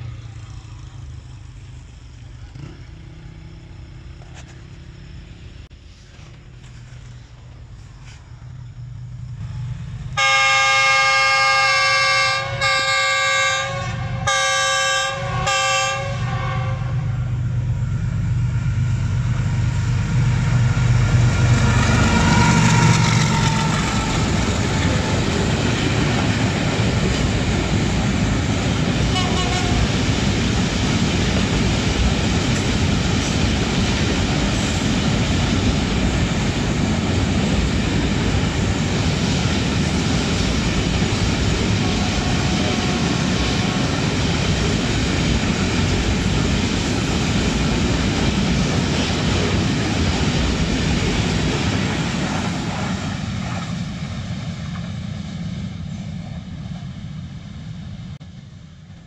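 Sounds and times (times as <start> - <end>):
diesel locomotive engine passing: 0.0 - 59.0
locomotive horn blasts: 10.2 - 17.2, 29.1 - 30.0
freight wagons rolling rumble: 17.1 - 55.0.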